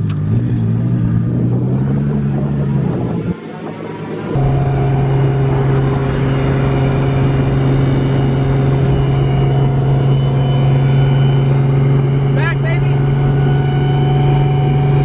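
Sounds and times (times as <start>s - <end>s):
car engine drone: 0.0s - 15.0s.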